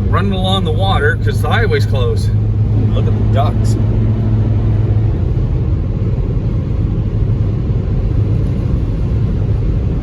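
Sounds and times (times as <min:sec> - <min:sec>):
car cabin road and engine rumble: 0:00.0 - 0:10.0.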